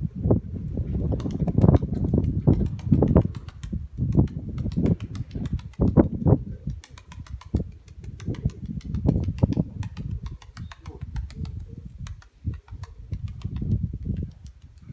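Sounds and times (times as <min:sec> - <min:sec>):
pigeons cooing: 0:09.6 - 0:12.0
small sharp clicks: 0:12.1 - 0:14.9.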